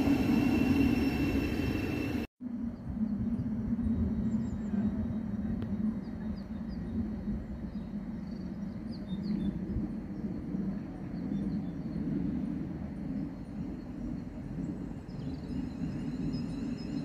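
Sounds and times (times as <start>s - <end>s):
electric trains humming: 0.0s - 2.3s.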